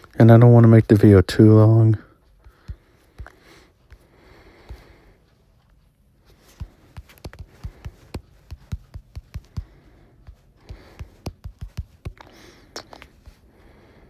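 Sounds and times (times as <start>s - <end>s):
fingers tapping on phone screen: 2.4s - 5.0s, 6.4s - 13.4s.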